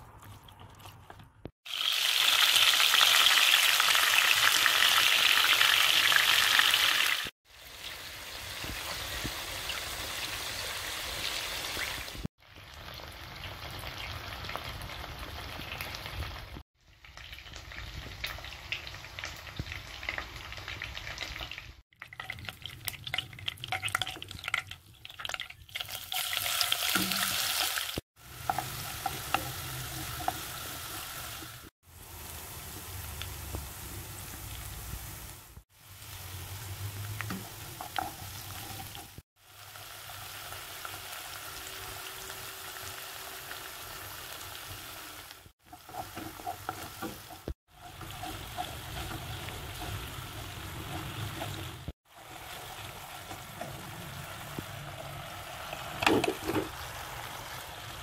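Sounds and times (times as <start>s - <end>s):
chicken frying in hot oil: 1.6s - 58.0s
spatula scraping in wok: 45.7s - 57.2s.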